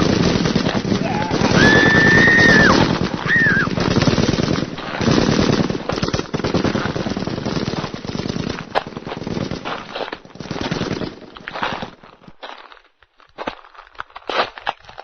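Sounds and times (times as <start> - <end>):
sharp crack: 0.0 - 11.9
rapid machine-gun fire: 0.0 - 12.0
scattered gunshots: 0.0 - 12.0.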